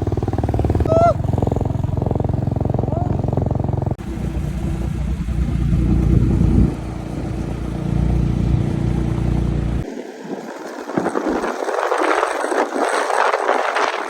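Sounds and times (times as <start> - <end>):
motorcycle engine running: 0.0 - 9.9
wind rumble on microphone: 0.0 - 14.0.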